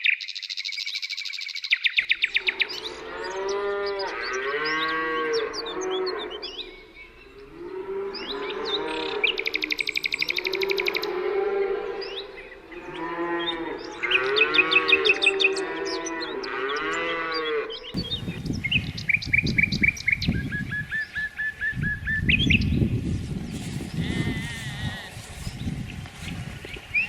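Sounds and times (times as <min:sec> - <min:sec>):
small birds chirping: 0:00.0 - 0:27.0
cattle mooing: 0:02.3 - 0:17.9, 0:23.8 - 0:25.6.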